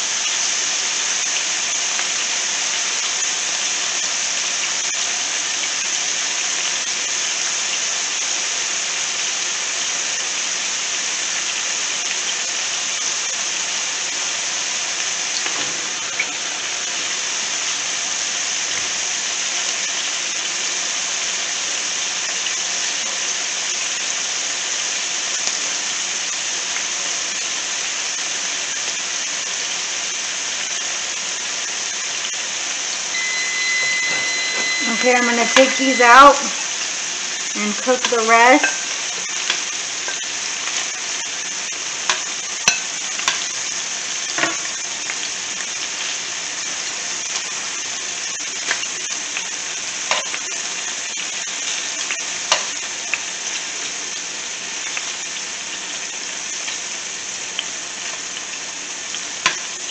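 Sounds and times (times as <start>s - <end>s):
chicken sizzling in oil: 0.0s - 59.9s.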